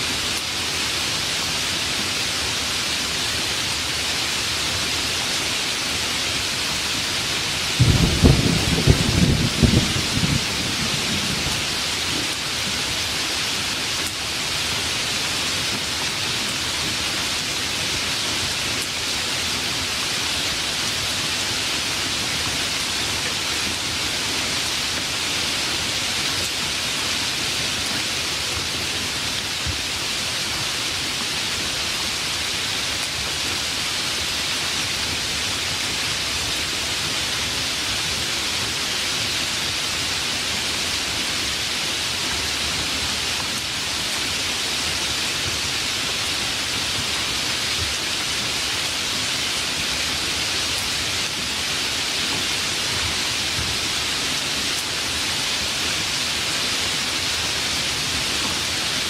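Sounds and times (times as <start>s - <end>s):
steady rain: 0.0s - 59.0s
low thunder rumble: 7.8s - 11.9s.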